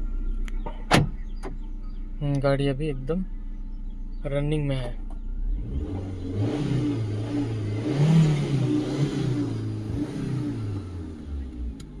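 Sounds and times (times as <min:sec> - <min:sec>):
car engine revving: 0:03.0 - 0:12.0.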